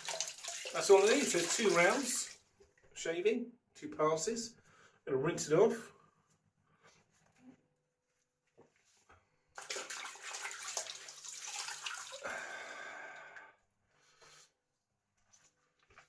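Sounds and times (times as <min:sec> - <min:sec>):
tap water splashing into sink: 0:00.0 - 0:02.4, 0:09.6 - 0:12.4.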